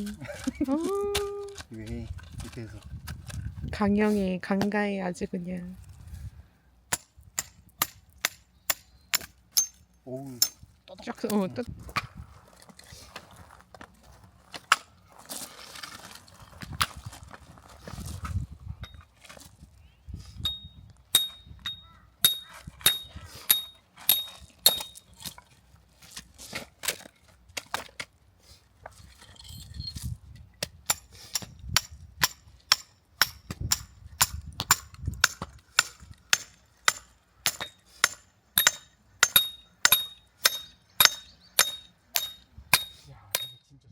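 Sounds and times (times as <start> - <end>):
metal striking metal with ringing: 6.9 - 10.6, 20.4 - 25.0, 30.9 - 43.7.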